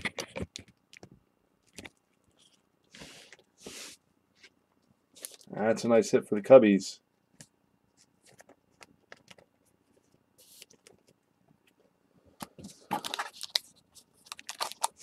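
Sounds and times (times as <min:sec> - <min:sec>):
papery rustling of cards: 0:12.5 - 0:15.0.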